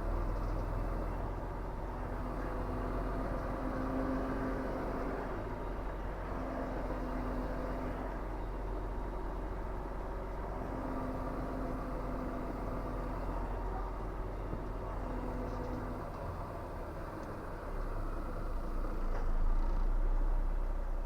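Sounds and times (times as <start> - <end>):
road noise: 0.0 - 21.0
truck diesel engine running: 0.0 - 21.0.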